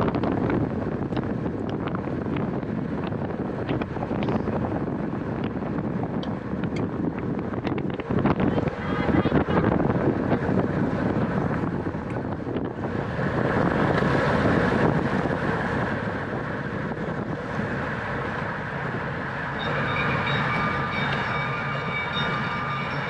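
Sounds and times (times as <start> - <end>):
bicycle road noise: 0.0 - 23.0
wind rushing over microphone: 0.0 - 23.0
high-pitched whine: 17.2 - 23.0.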